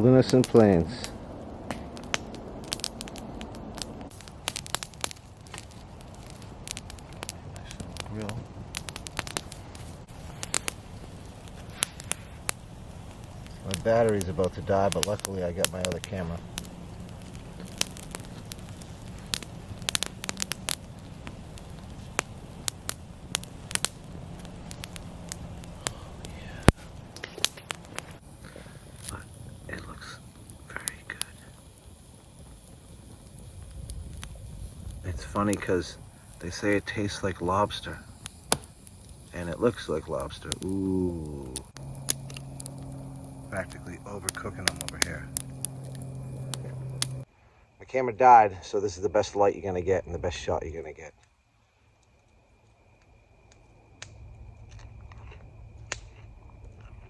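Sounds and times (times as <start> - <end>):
campfire crackling and popping: 0.0 - 47.3, 51.2 - 57.0.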